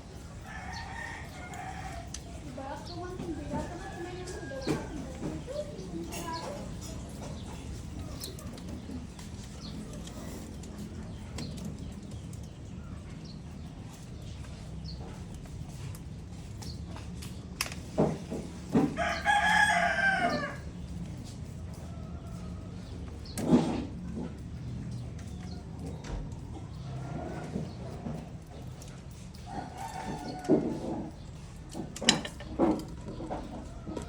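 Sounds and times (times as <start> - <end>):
rooster crowing: 0.4 - 2.4, 3.4 - 5.1, 18.8 - 20.7, 29.5 - 30.9.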